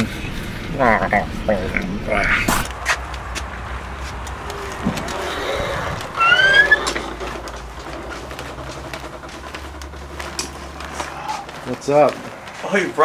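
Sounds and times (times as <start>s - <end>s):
vehicle low hum: 0.0s - 13.0s
short rising squeak: 4.5s - 7.6s.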